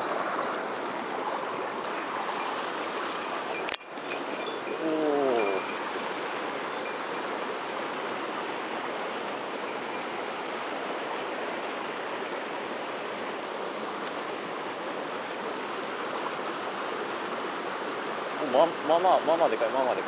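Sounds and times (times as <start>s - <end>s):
stream rushing over rocks: 0.0s - 20.0s
faint click: 14.0s - 14.2s.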